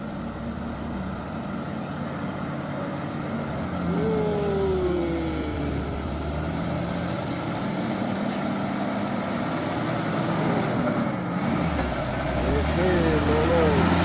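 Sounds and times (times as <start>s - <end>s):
diesel truck engine running: 0.0s - 14.0s.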